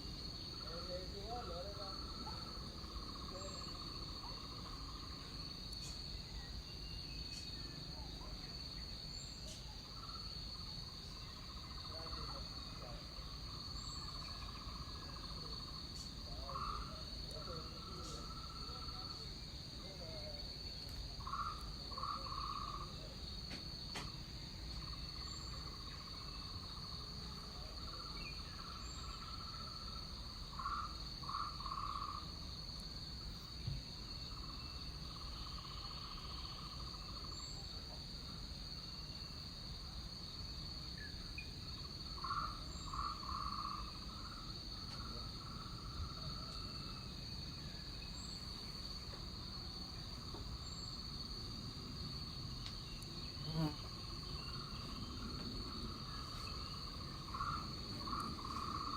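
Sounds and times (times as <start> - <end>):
insects droning: 0.0 - 58.9.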